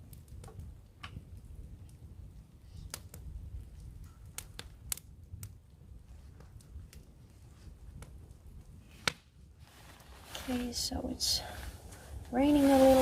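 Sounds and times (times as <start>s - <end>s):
sharp pops from fire: 0.0s - 10.8s
campfire crackling: 0.0s - 13.0s
low rumble: 9.6s - 13.0s.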